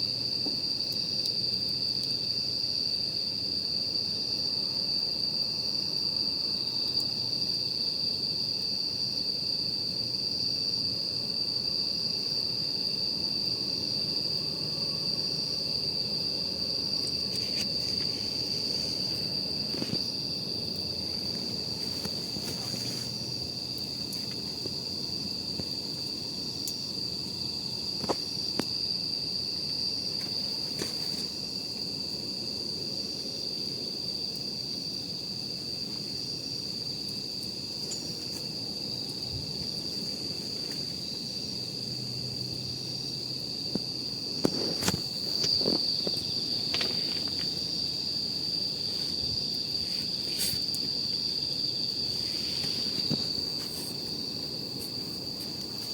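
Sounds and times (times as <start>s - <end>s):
night insects trilling: 0.0s - 55.9s
campfire crackling: 0.1s - 11.5s, 15.2s - 42.0s, 43.7s - 55.9s
fire popping: 16.9s - 27.0s, 27.9s - 28.8s.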